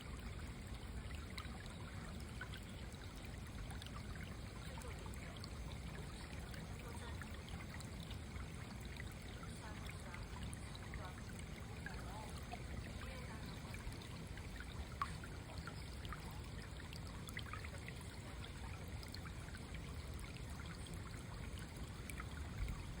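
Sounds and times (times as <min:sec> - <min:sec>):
stream trickling and rushing: 0:00.0 - 0:23.0.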